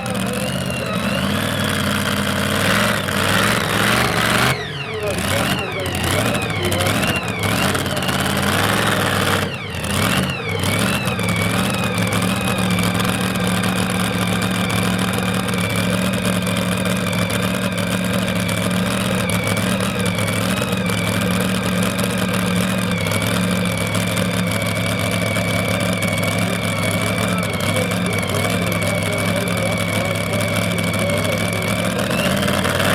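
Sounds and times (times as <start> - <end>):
truck engine revving hard: 0.0 - 32.9.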